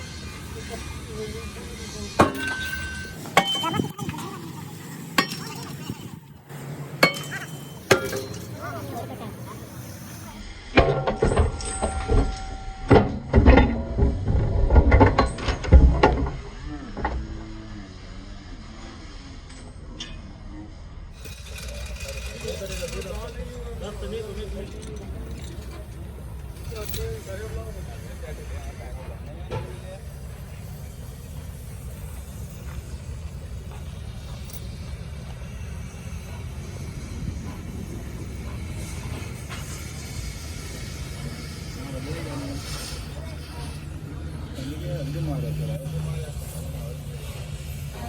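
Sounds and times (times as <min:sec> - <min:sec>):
workshop machine rumbling: 0:00.0 - 0:20.0, 0:20.9 - 0:48.0
metal parts knocking and clattering: 0:10.8 - 0:16.4, 0:21.2 - 0:27.6.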